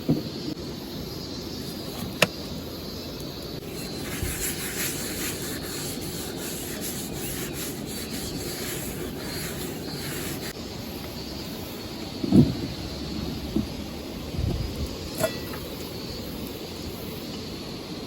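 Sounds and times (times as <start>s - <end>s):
rubbing strokes: 3.6s - 10.6s
thump: 12.2s - 12.7s.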